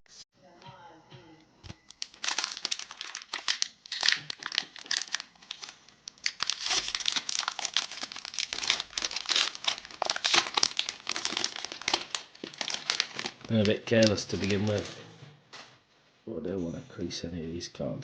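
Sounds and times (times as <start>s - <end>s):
foil wrapper crinkling and tearing: 1.9s - 14.9s.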